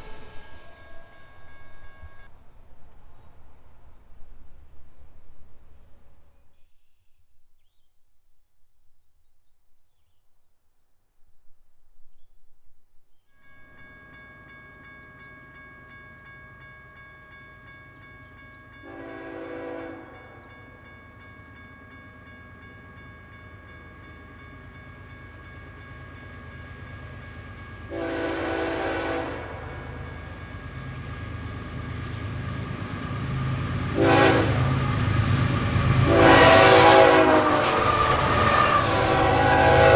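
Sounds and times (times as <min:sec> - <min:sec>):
diesel train engine: 0:00.0 - 0:06.2, 0:13.6 - 0:39.9
locomotive horn blasts: 0:18.8 - 0:20.3, 0:27.9 - 0:30.1, 0:33.8 - 0:39.9.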